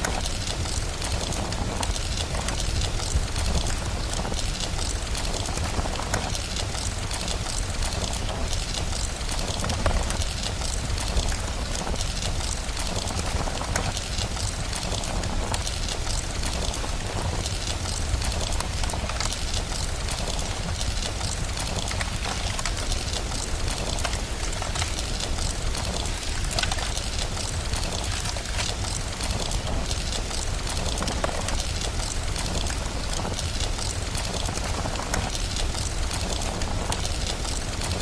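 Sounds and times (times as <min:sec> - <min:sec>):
fireplace crackles: 0:00.0 - 0:38.0
rain hiss: 0:00.0 - 0:38.0.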